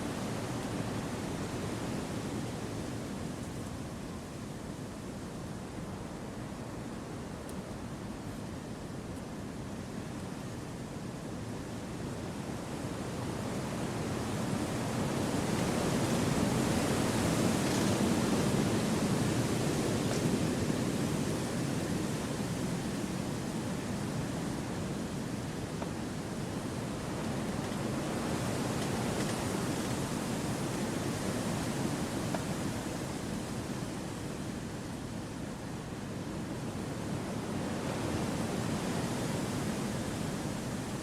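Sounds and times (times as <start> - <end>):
wind rushing through trees: 0.0 - 41.0.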